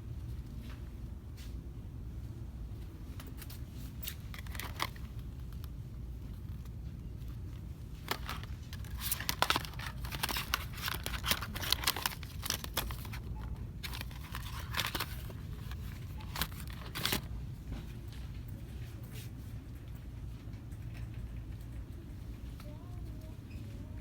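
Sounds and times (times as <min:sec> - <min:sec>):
low steady hum: 0:00.0 - 0:24.0
packaging crinkling: 0:03.9 - 0:17.3.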